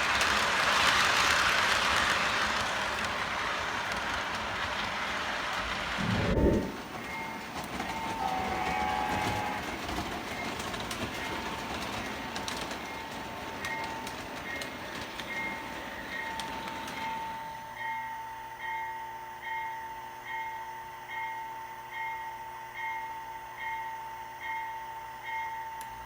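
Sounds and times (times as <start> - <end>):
wheels clicking over rail joints: 0.0 - 6.1, 6.8 - 17.8
model train rolling on track: 0.0 - 25.8
steady high tone: 6.0 - 6.9.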